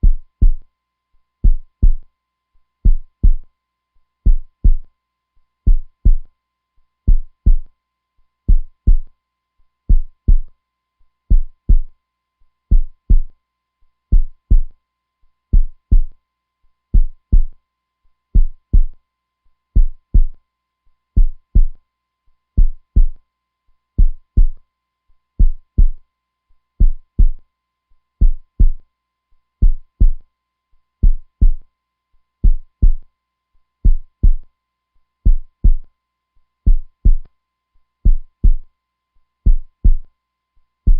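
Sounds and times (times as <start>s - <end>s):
heartbeat thumps: 0.0s - 0.6s, 1.4s - 2.0s, 2.8s - 3.4s, 4.3s - 4.8s, 5.7s - 6.3s, 7.1s - 7.7s, 8.5s - 9.1s, 9.9s - 10.5s, 11.3s - 11.9s, 12.7s - 13.3s, 14.1s - 14.7s, 15.6s - 16.1s, 17.0s - 17.5s, 18.4s - 19.0s, 19.8s - 20.4s, 21.2s - 21.8s, 22.6s - 23.2s, 24.0s - 24.6s, 25.4s - 26.0s, 26.8s - 27.4s, 28.2s - 28.8s, 29.6s - 30.2s, 31.0s - 31.6s, 32.4s - 33.0s, 33.8s - 34.4s, 35.3s - 35.8s, 36.7s - 37.2s, 38.1s - 38.6s, 39.5s - 40.0s.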